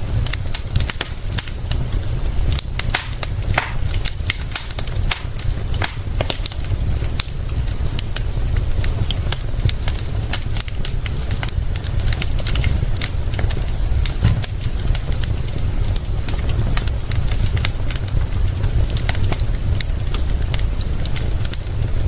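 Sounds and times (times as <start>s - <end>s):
fire low rumble: 0.0s - 22.0s
wood fire pops and snaps: 0.0s - 22.0s.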